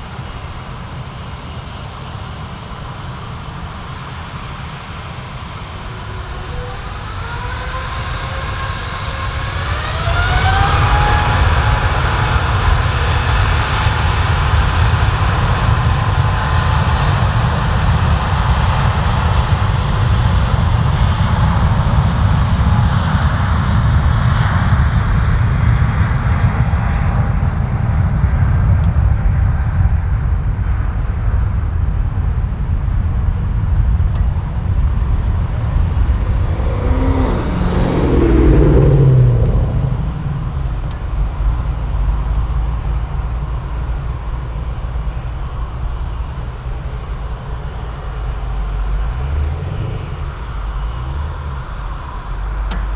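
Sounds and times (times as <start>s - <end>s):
jet engines rumbling: 33.9s - 43.8s
high jet whine: 34.2s - 42.4s.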